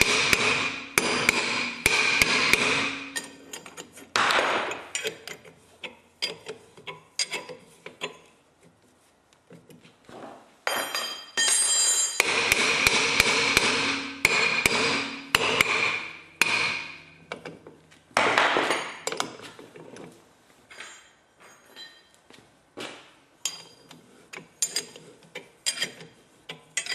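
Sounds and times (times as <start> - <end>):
hammer striking steel: 0.0 - 3.6, 10.7 - 17.2.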